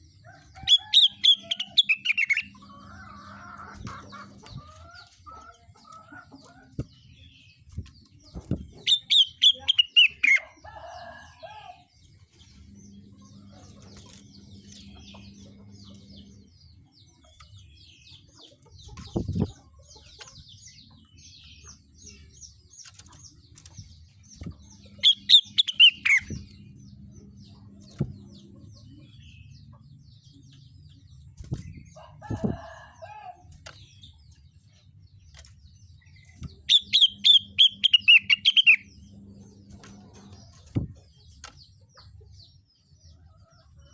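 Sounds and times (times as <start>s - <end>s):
songbird singing: 0.0s - 43.9s
short dull thumps: 7.7s - 8.9s.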